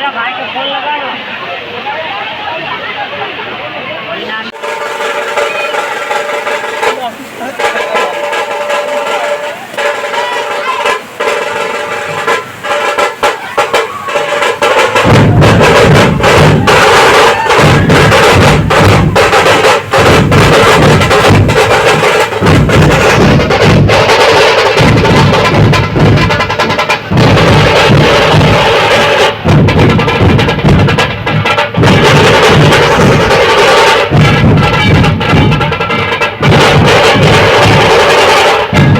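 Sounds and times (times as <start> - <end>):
festival music melody: 2.7 - 38.9
heavy low drumming: 4.5 - 38.9
sharp clicking percussion: 4.6 - 38.9.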